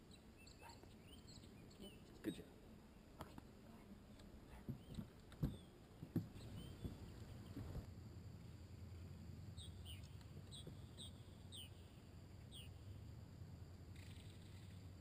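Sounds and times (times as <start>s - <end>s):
bird chirping: 0.0s - 3.0s, 4.1s - 7.8s, 8.9s - 13.0s, 13.9s - 15.0s
low steady hum: 0.0s - 15.0s.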